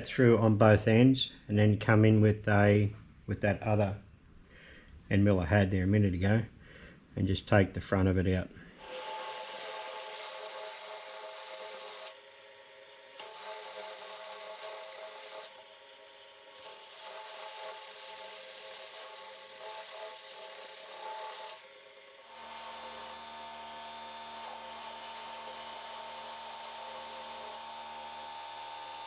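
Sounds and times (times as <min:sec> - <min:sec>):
milling machine cutting steel: 0:16.2 - 0:29.0.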